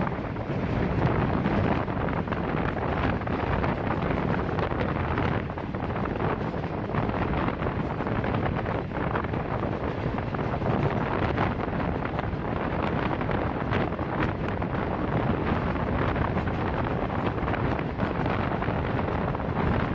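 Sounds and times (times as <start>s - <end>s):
moving passenger train rumble: 0.0s - 19.9s
wind buffeting microphone: 0.0s - 19.9s.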